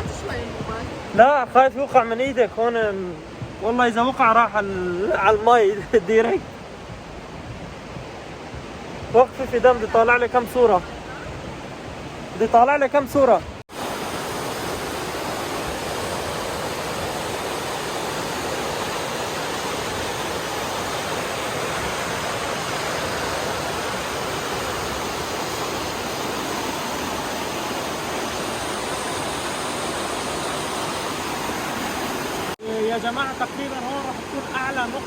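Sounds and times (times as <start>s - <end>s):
river rushing through rock gorge: 12.4s - 35.0s.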